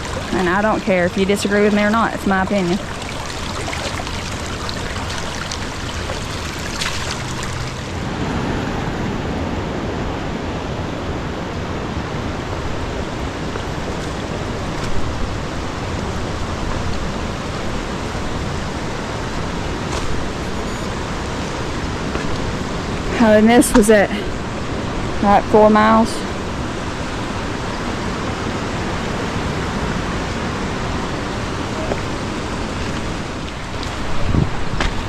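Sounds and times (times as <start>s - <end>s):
river water rushing: 0.0s - 9.8s, 25.8s - 34.6s.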